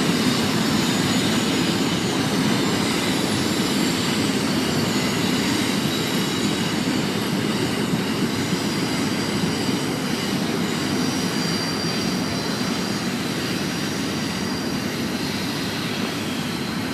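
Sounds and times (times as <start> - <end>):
freight train rumbling past: 0.0 - 16.9
high wheel squeal: 0.0 - 16.9.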